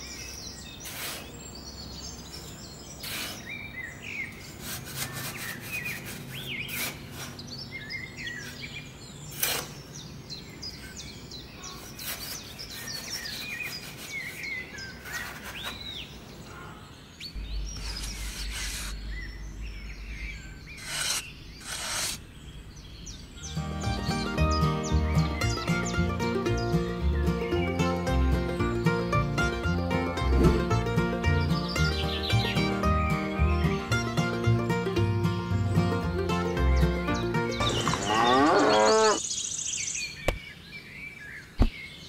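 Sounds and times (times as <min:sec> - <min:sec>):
birds chirping: 0:00.0 - 0:42.0
trowel scraping damp sand: 0:00.8 - 0:01.4, 0:03.0 - 0:03.6, 0:04.4 - 0:07.5, 0:09.3 - 0:09.8, 0:11.7 - 0:16.0, 0:17.6 - 0:19.2, 0:20.7 - 0:22.2.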